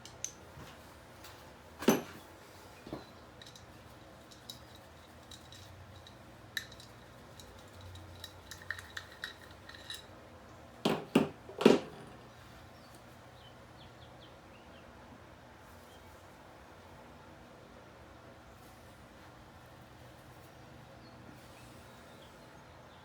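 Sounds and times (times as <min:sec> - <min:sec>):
metal tools clinking: 0:02.8 - 0:10.1.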